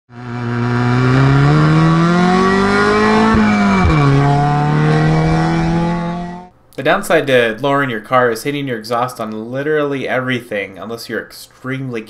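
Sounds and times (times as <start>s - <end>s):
car engine accelerating hard: 0.1s - 6.5s.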